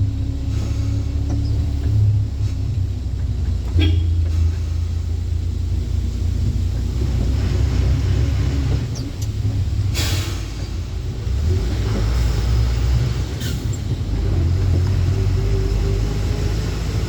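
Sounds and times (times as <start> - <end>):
truck engine and road rumble: 0.0 - 17.0
short air hiss: 10.0 - 10.6.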